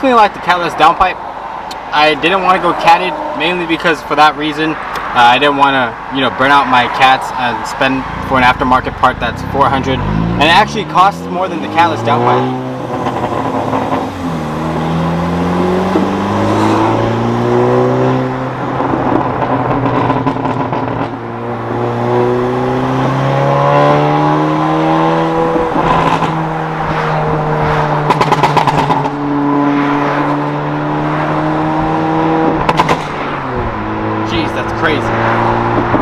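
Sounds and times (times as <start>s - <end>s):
exhaust crackling: 0.0s - 36.0s
car engine accelerating: 8.0s - 36.0s.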